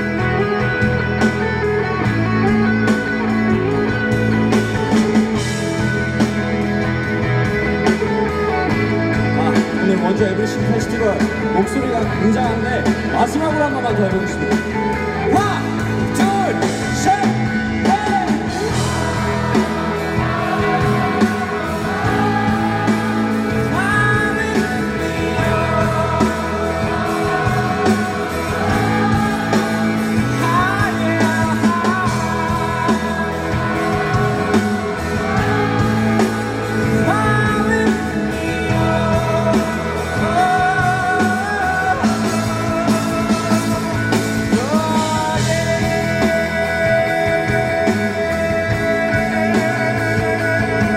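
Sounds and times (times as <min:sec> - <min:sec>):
live rock band with guitars: 0:00.0 - 0:50.9
voices singing: 0:15.5 - 0:50.9
audience singing along: 0:17.9 - 0:50.9.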